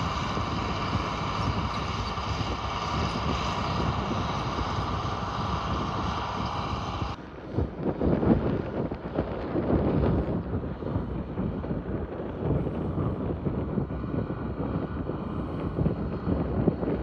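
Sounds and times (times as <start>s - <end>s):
tractor diesel engine running: 0.0s - 7.2s
steady whine: 0.0s - 7.4s.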